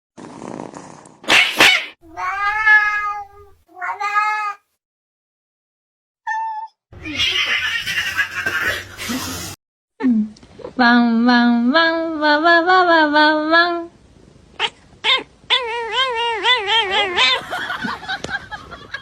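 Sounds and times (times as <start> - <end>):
cat meowing: 2.0 - 4.7, 6.3 - 8.2.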